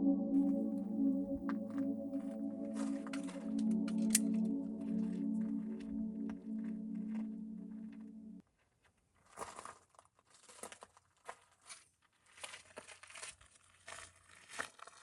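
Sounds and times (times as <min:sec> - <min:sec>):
background music: 0:00.0 - 0:08.4
crinkling and rustling: 0:07.8 - 0:15.0.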